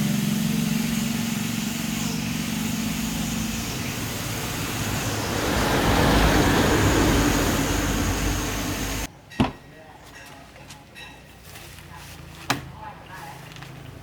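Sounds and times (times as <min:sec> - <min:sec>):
even hum: 0:00.0 - 0:09.1
machine motor rushing noise: 0:00.0 - 0:09.1
deep rumble: 0:02.0 - 0:09.1.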